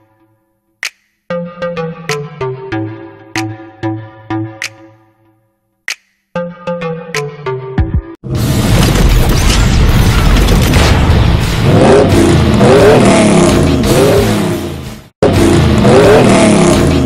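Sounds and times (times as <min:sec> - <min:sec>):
car engine revving: 0:11.6 - 0:17.0.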